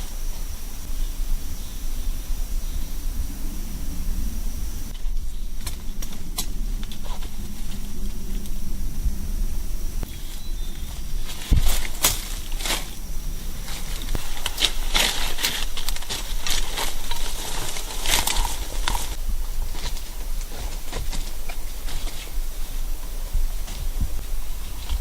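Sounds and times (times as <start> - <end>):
rustling and crackling: 0.0 - 25.0
sharp snaps and crunches: 4.8 - 8.7, 10.0 - 25.0.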